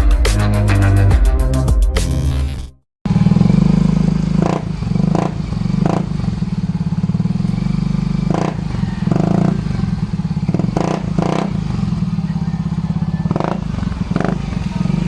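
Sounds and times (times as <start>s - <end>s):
exhaust crackles: 3.1s - 15.0s
scooter engine idling: 3.1s - 15.0s.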